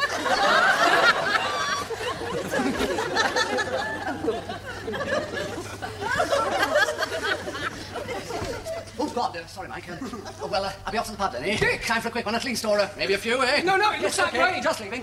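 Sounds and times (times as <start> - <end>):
bursts of laughter: 0.0 - 8.9.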